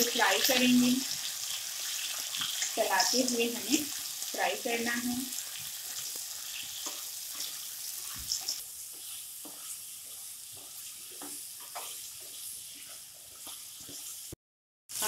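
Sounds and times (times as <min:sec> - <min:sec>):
vegetables sizzling in hot oil: 0:00.0 - 0:15.0
spatula stirring and knocking pan: 0:05.5 - 0:14.4.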